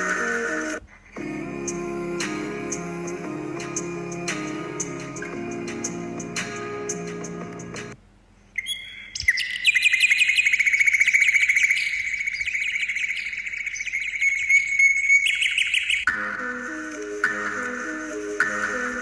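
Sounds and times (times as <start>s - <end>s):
background music: 0.0s - 8.0s, 16.1s - 19.0s
bird trilling: 8.6s - 16.1s.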